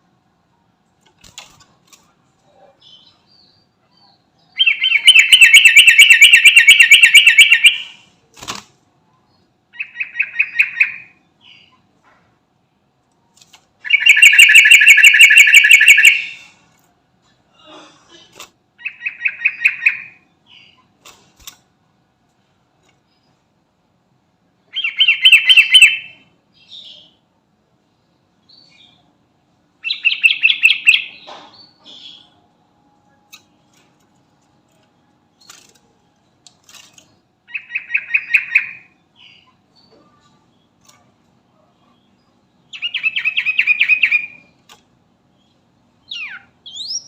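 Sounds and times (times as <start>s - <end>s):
bulbul singing: 4.5s - 8.0s, 13.8s - 16.5s, 24.7s - 27.1s, 37.5s - 40.7s.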